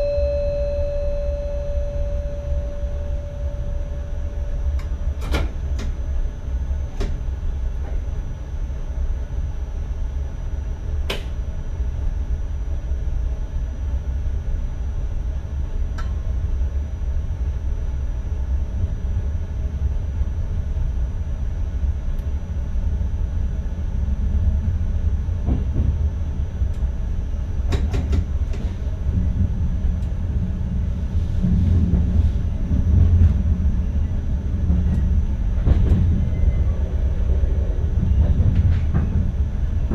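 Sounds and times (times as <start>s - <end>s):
faint high whine: 0.0s - 5.1s
train wheels rumbling: 23.9s - 39.9s.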